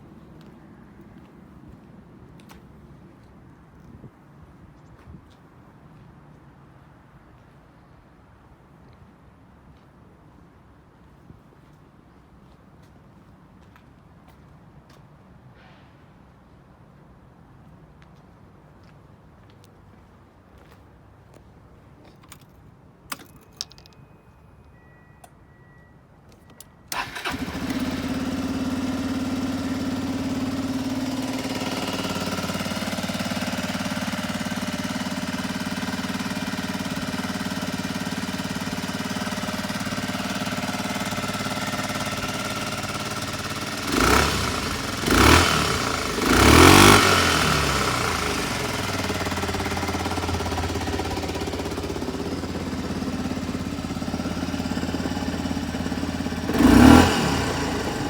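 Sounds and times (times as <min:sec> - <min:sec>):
scooter engine revving: 0:26.9 - 0:58.0
scooter engine starting and idling: 0:26.9 - 0:58.0.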